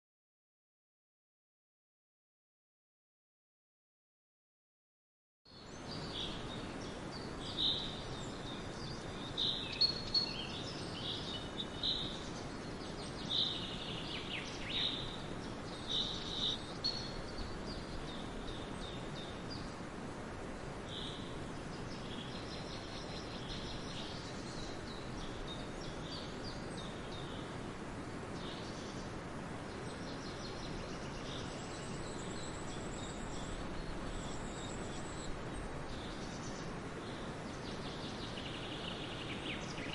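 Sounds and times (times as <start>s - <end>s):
background hiss: 5.5s - 39.9s
small birds chirping: 5.5s - 39.9s.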